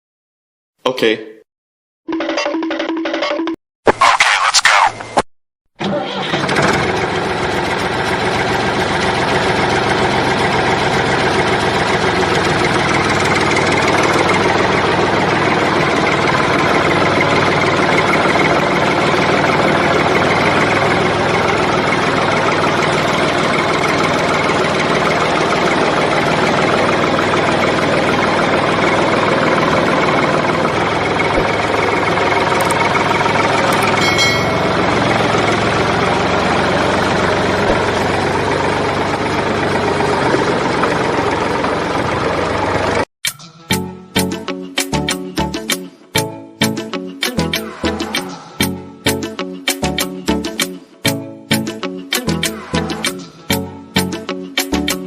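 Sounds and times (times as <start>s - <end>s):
small engine idling: 5.8s - 43.0s.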